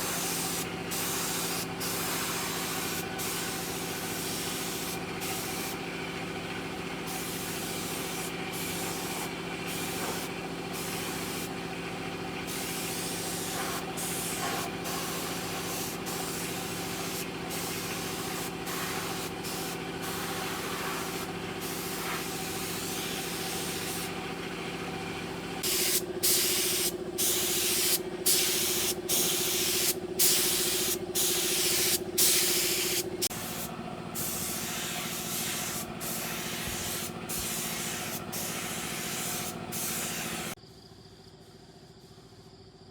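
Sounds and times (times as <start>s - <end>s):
air tool hissing: 0.0s - 6.0s, 7.0s - 11.6s, 12.4s - 24.2s, 25.6s - 40.6s
air compressor motor humming: 0.0s - 40.6s.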